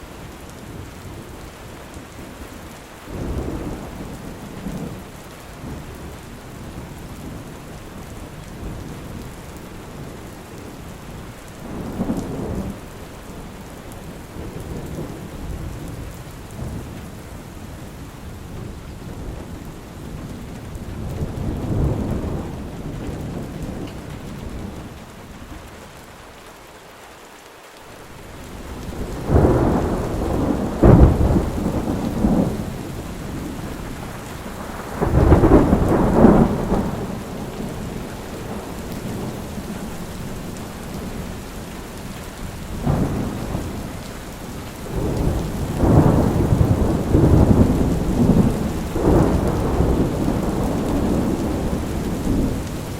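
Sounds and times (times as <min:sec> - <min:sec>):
heavy rain: 0:00.0 - 0:52.9
thunder rumbling: 0:18.4 - 0:25.6, 0:28.0 - 0:52.9.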